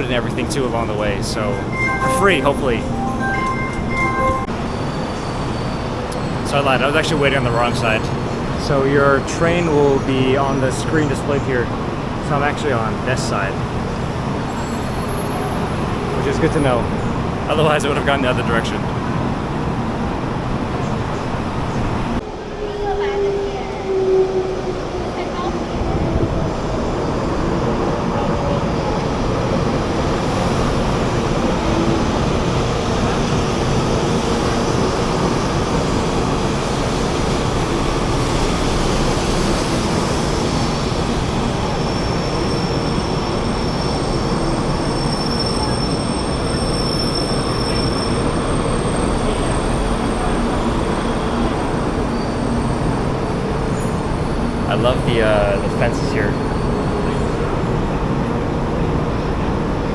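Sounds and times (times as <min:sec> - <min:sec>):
train running on rails: 0:00.0 - 0:59.9
high wheel squeals: 0:41.7 - 0:49.8.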